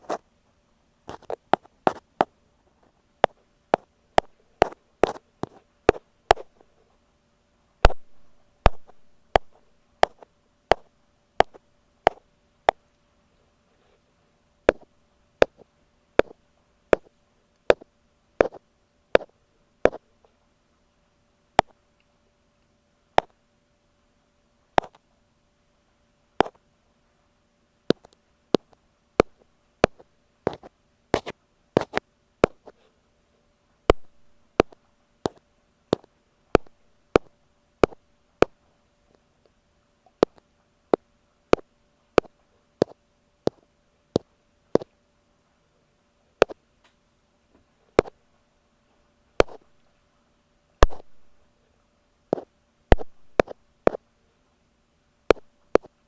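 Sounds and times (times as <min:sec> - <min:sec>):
faint steady hum: 0:00.0 - 0:56.0
ear pick tapping on microphone: 0:01.1 - 0:02.3, 0:03.2 - 0:06.6, 0:07.8 - 0:12.8, 0:14.7 - 0:15.6, 0:16.2 - 0:17.1, 0:17.7 - 0:18.6, 0:27.9 - 0:32.8, 0:33.9 - 0:38.6, 0:48.0 - 0:48.2, 0:49.4 - 0:49.6, 0:50.8 - 0:51.3, 0:52.3 - 0:54.0, 0:55.3 - 0:56.0.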